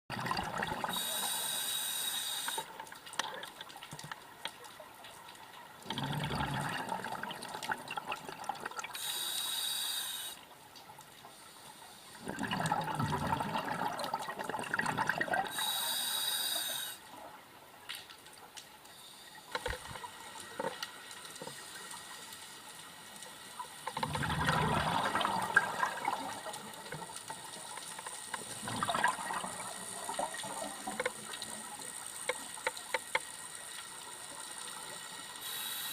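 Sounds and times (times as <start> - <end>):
bubbles gurgling: 0.1 - 1.0, 5.8 - 8.9, 12.2 - 15.6, 23.9 - 27.0, 28.4 - 31.7
regulator inhalation hiss: 0.9 - 2.7, 9.0 - 10.5, 15.5 - 17.1, 35.4 - 35.9.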